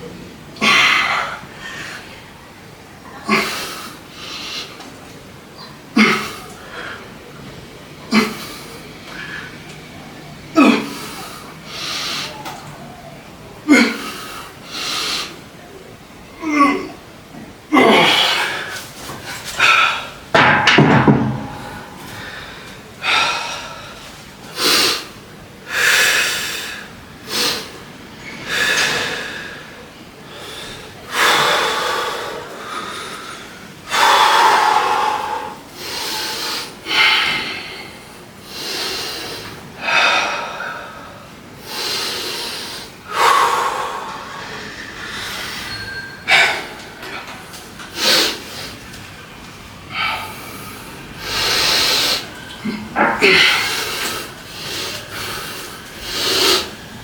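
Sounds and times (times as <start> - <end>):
person breathing hard: 28.5 - 47.1, 49.9 - 57.0.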